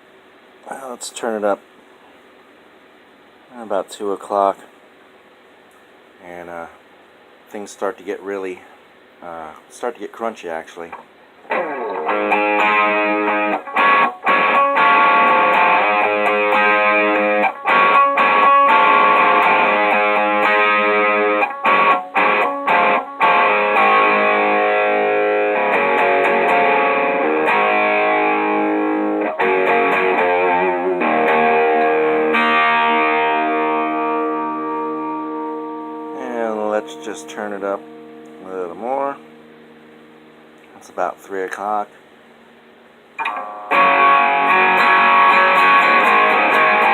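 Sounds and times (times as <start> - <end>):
distorted electric guitar chords: 11.4 - 40.9, 43.2 - 46.9.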